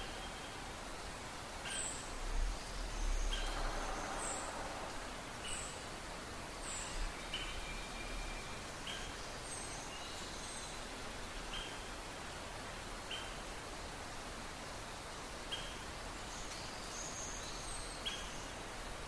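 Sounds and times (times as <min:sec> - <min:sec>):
background hiss: 0:00.0 - 0:19.0
birds chirping: 0:01.6 - 0:10.8.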